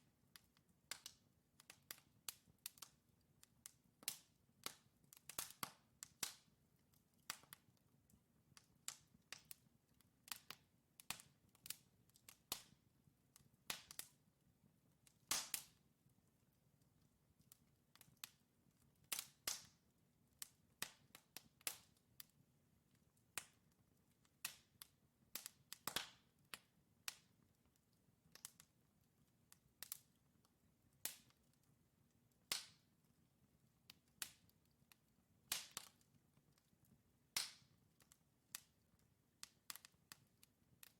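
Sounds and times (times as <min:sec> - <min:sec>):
wood fire crackling: 0:00.1 - 0:40.9.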